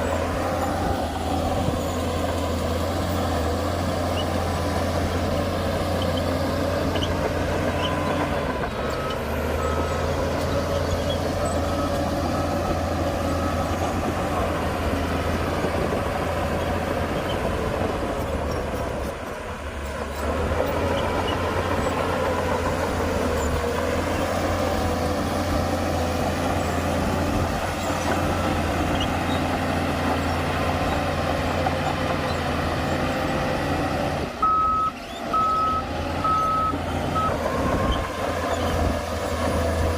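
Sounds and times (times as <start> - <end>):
heavy diesel machinery running: 0.0 - 39.9
reversing alarm beeping: 7.6 - 14.7, 34.4 - 38.2.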